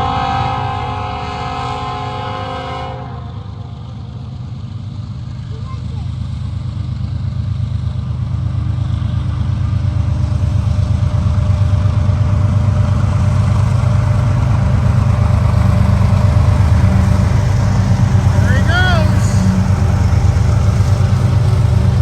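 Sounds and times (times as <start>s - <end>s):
diesel locomotive engines pulsing: 0.0s - 22.0s.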